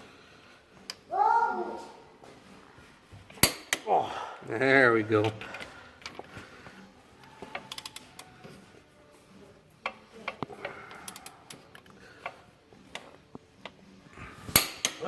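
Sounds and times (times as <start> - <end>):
hand tools clicking on metal: 7.4 - 8.3.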